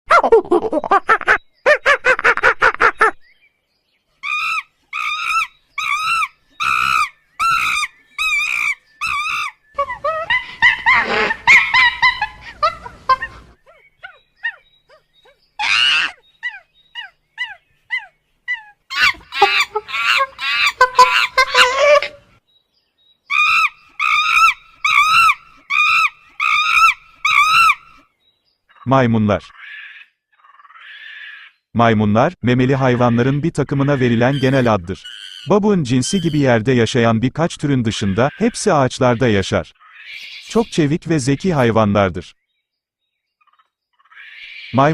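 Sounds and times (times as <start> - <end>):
animal squealing: 4.2 - 15.0, 15.6 - 22.3, 23.3 - 28.0, 32.8 - 36.6, 37.8 - 40.8, 44.1 - 44.9
young animal crying: 4.2 - 22.4, 23.3 - 28.0, 29.5 - 31.6, 32.8 - 36.6, 37.8 - 40.8, 44.0 - 44.9.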